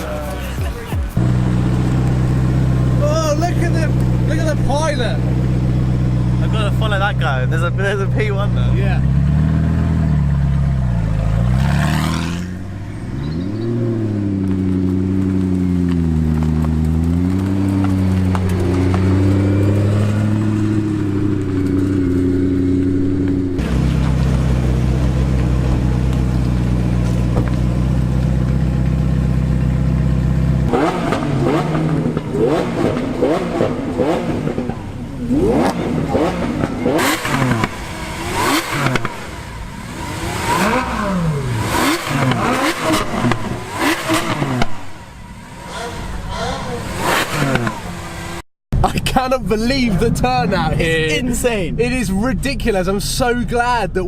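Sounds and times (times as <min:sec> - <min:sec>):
sports car engines revving: 0:00.0 - 0:54.0.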